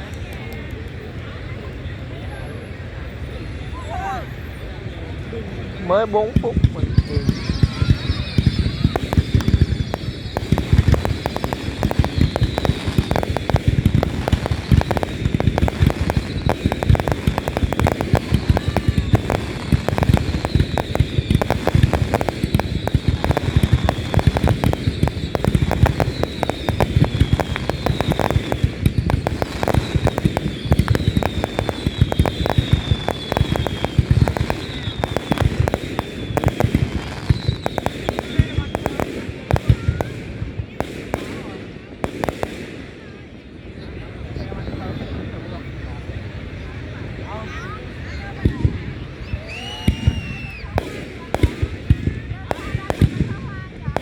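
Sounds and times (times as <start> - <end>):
fireworks crackling pops: 0.0 - 1.4, 6.0 - 45.8, 47.5 - 54.0
falling firework whistles: 6.1 - 43.1, 48.4 - 54.0.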